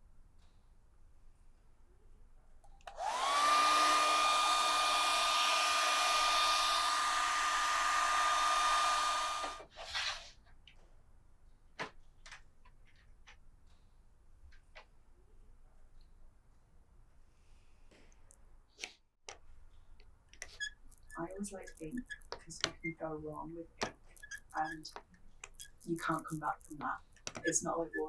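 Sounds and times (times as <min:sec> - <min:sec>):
electric blower motor whine: 0:02.9 - 0:09.6.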